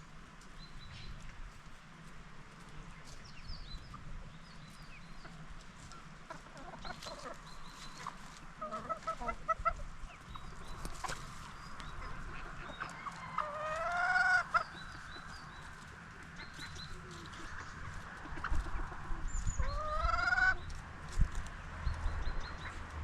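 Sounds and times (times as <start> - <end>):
chickens clucking: 0.4 - 23.0
rooster crowing: 12.9 - 14.5.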